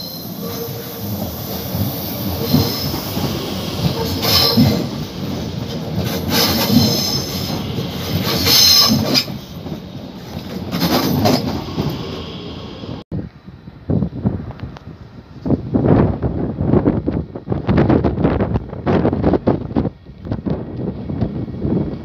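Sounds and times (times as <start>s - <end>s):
train rolling rumble: 0.0s - 22.0s
high-pitched wheel squeal: 3.8s - 4.9s, 8.3s - 9.5s.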